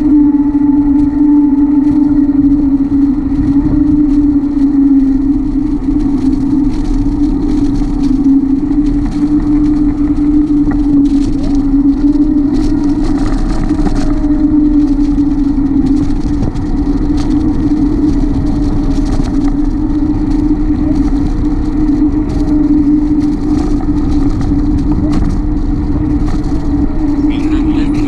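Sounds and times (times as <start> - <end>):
bicycle road and wind noise: 0.0 - 28.0
steady hum: 0.0 - 28.0.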